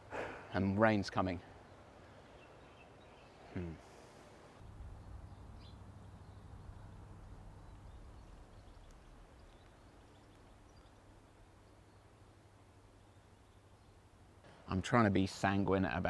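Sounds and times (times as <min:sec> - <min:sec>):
low steady hum: 0:04.6 - 0:15.0
faint high bird chirps: 0:04.9 - 0:12.0.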